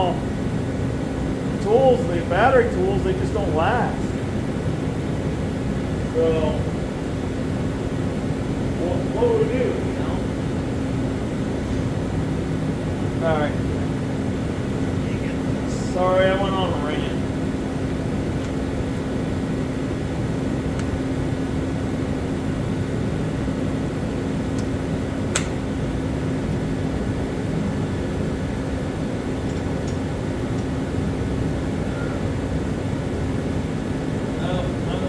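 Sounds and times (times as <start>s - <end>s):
mechanical hum: 0.0s - 35.0s
sharp click: 25.4s - 25.6s.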